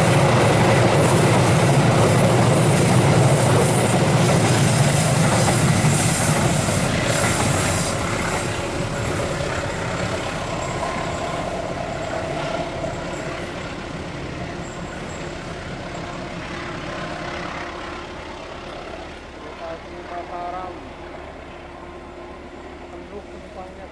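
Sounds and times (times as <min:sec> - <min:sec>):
train rumbling past: 0:00.0 - 0:23.9.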